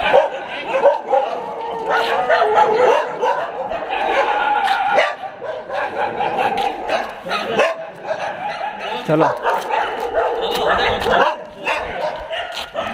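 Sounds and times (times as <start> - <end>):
dogs barking: 0.0 - 12.9
dogs whining: 0.0 - 12.9.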